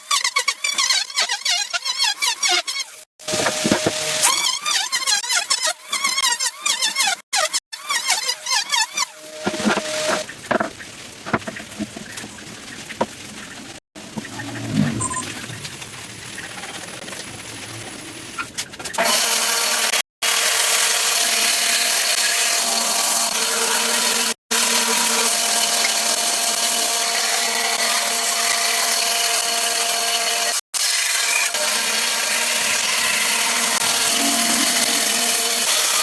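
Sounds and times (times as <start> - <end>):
power tool cutting wood: 0.4 - 10.6, 19.0 - 36.0.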